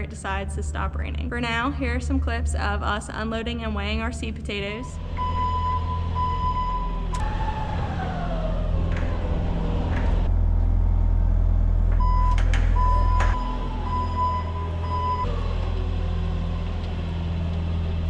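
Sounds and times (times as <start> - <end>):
heavy vehicle engine rumbling: 0.0 - 18.0
falling whine: 4.9 - 18.0
reversing beeper: 5.1 - 8.4, 12.0 - 15.4.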